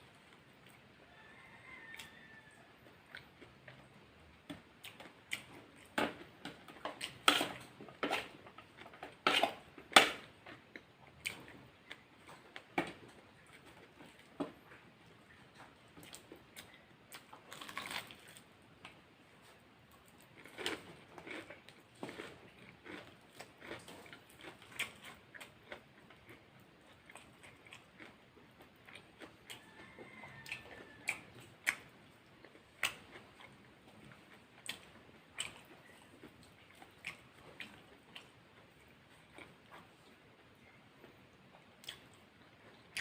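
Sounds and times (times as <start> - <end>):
person chewing wetly: 4.5 - 18.5, 19.4 - 43.0
crunchy bites: 17.4 - 18.4, 20.3 - 25.8.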